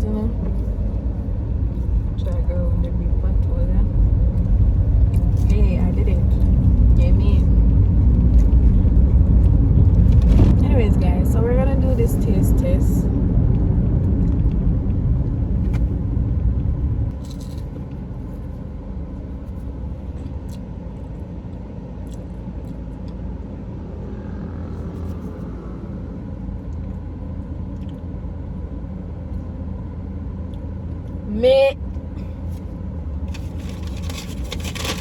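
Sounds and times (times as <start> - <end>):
car cabin rumble: 0.0 - 24.0.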